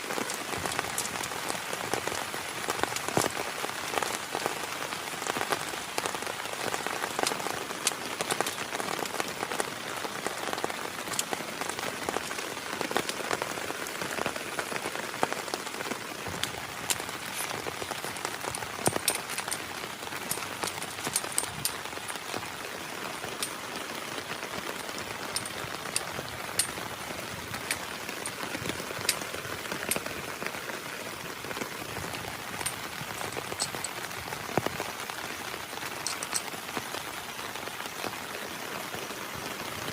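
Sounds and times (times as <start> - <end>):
raindrop strikes: 0.0 - 38.2
heavy rain hiss: 0.0 - 39.9.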